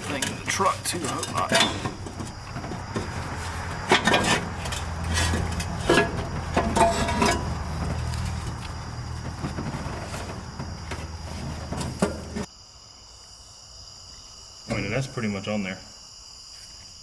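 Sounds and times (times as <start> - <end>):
metal tools clinking and knocking: 0.0 - 12.5.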